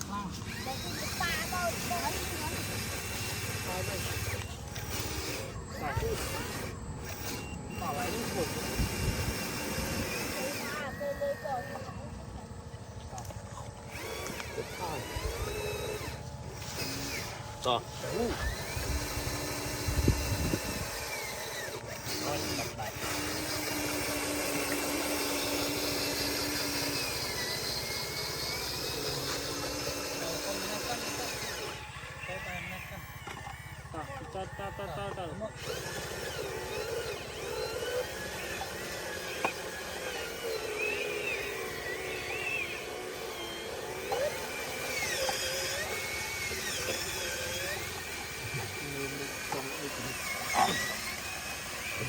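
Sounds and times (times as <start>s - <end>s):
motor hum with thin whine: 0.0s - 52.0s.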